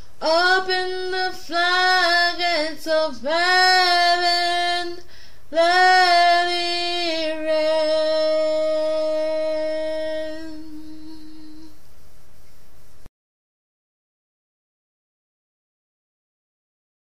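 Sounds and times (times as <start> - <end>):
faint hiss: 0.0 - 13.1
woman singing a long note: 0.2 - 11.8.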